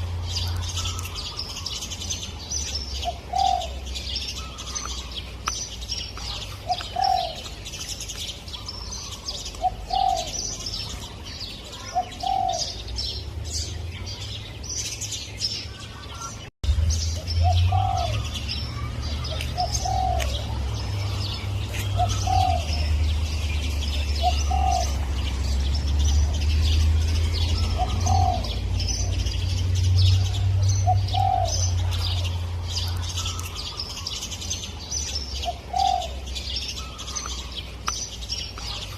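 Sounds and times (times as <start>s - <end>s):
small birds chirping: 0.0s - 38.9s
dove cooing: 3.0s - 5.1s, 6.2s - 7.6s, 8.5s - 11.1s, 11.7s - 12.9s, 17.4s - 23.1s, 23.9s - 25.2s, 27.4s - 29.3s, 30.2s - 34.1s, 35.4s - 37.5s.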